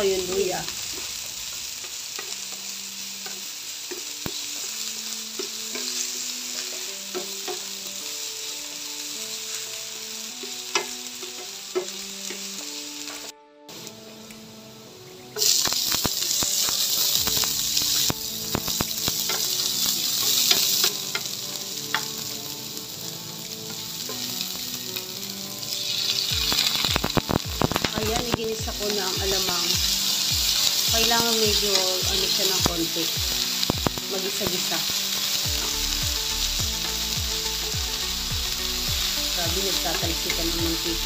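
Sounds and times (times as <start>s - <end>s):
food sizzling in hot oil: 0.0s - 41.0s
spatula stirring and scraping: 5.3s - 7.7s, 15.4s - 22.2s
spatula clicking on pan: 5.4s - 7.7s, 15.4s - 22.3s.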